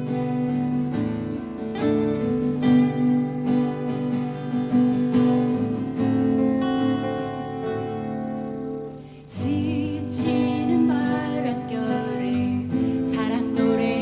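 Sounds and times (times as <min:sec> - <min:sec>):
acoustic guitar strumming: 0:00.0 - 0:14.0
sustained backing tones: 0:00.0 - 0:14.0.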